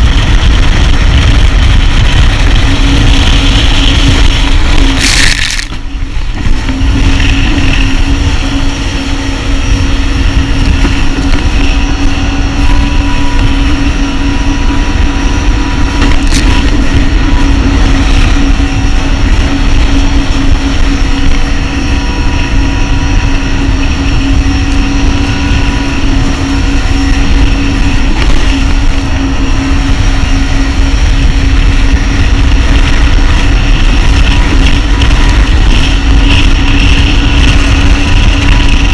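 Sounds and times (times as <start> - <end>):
jet ski engine running: 0.0 - 38.9
wind on microphone: 0.0 - 38.9.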